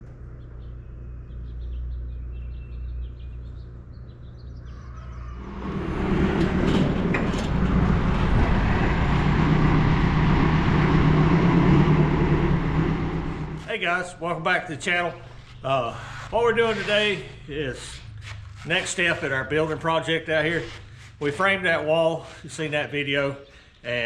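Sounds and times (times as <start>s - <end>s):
low steady rumble: 0.0s - 21.9s
birds chirping: 0.2s - 5.6s, 12.6s - 24.0s
engine-driven machine running: 5.2s - 13.7s.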